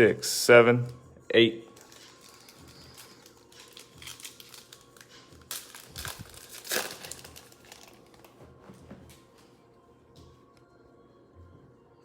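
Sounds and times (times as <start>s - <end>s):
plastic wrappers tearing and crinkling: 1.7s - 8.4s.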